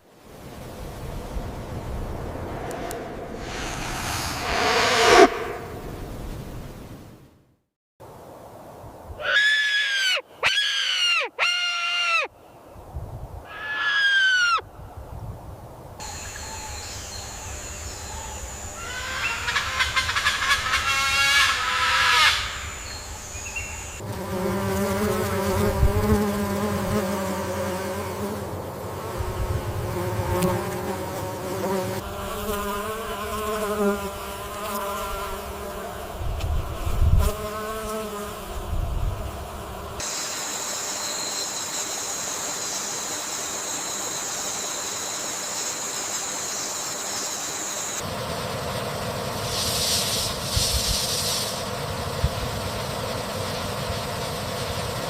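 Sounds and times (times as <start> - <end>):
wavering buzz: 1.6 - 6.4.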